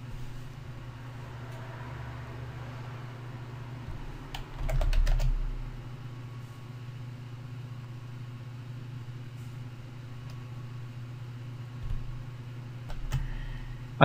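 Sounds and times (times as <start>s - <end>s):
low hum: 0.0s - 14.0s
keyboard typing: 3.9s - 5.6s, 12.8s - 13.3s.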